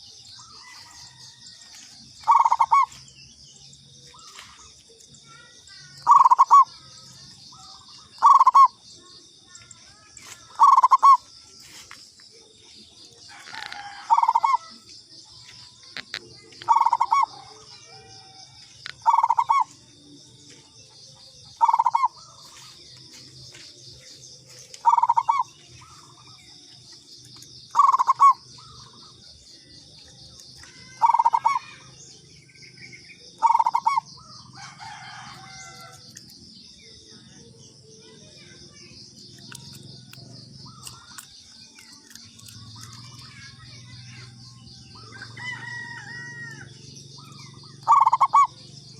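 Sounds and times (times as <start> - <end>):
dove cooing: 2.2 - 3.0, 5.8 - 6.9, 7.5 - 8.8, 10.5 - 11.2, 13.3 - 14.8, 15.9 - 19.8, 21.5 - 22.6, 24.4 - 26.3, 27.7 - 29.1, 30.8 - 31.8, 33.4 - 36.0, 47.2 - 48.6.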